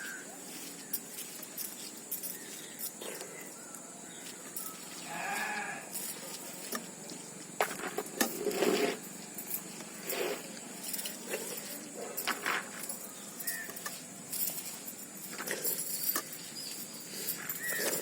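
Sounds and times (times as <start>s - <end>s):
farm animal bleating: 5.0s - 5.9s.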